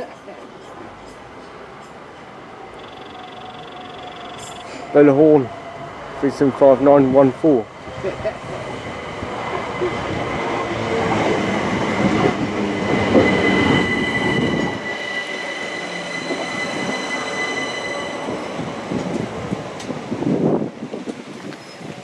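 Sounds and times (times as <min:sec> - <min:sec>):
heavy train rumble: 0:00.0 - 0:22.0
train brakes squealing: 0:02.7 - 0:07.0, 0:11.2 - 0:20.1, 0:21.5 - 0:22.0.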